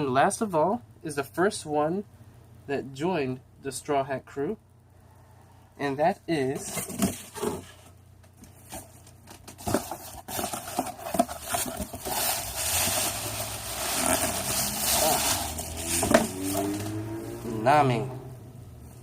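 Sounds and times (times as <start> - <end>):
packaging scraping and crinkling: 6.5 - 17.0.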